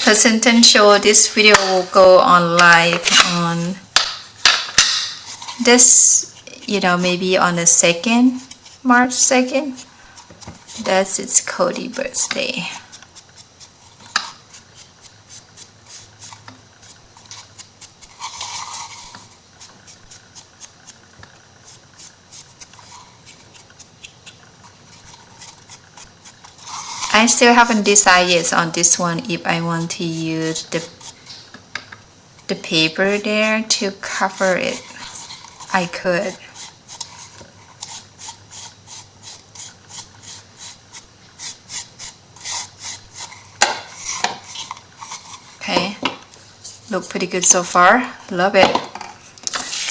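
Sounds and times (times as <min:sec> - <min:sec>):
hands rubbing craft pieces: 0:04.8 - 0:31.5, 0:32.8 - 0:48.0.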